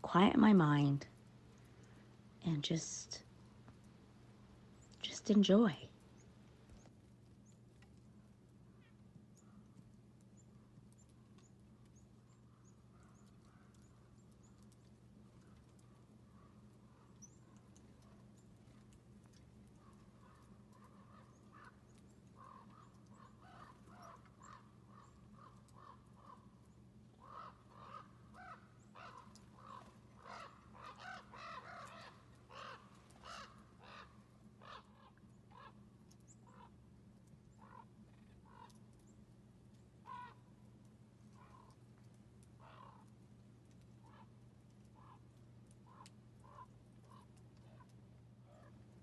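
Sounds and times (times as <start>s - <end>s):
faint low hum: 0.0s - 49.0s
short rough bird calls: 27.2s - 35.8s, 40.0s - 40.4s.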